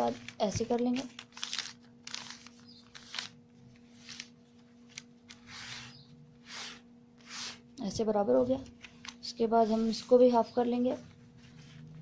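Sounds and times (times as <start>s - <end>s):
paper rustling and crinkling: 0.0s - 5.7s
paper rubbing: 5.3s - 7.6s.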